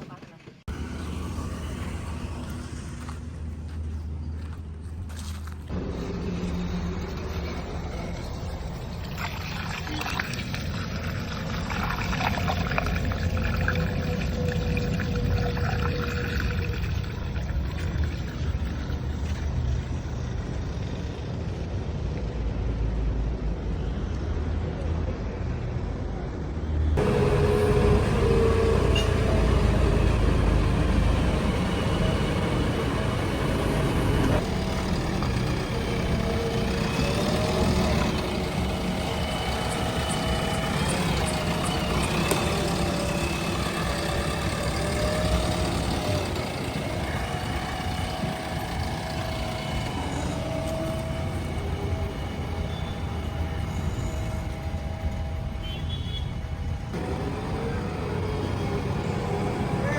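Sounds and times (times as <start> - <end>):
diesel engine running: 0.0 - 24.8, 25.4 - 59.9
soil and stones rattling: 5.0 - 20.3, 30.6 - 51.2
thin whine: 27.0 - 59.9.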